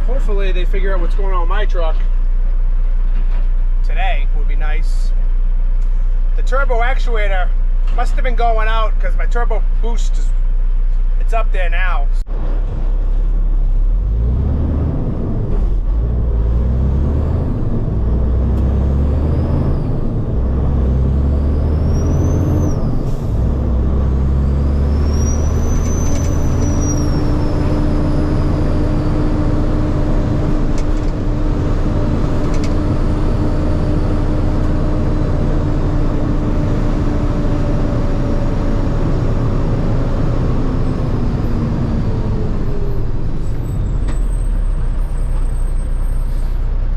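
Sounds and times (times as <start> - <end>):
diesel truck shifting gears: 12.2 - 46.9
high whistle: 25.0 - 28.2.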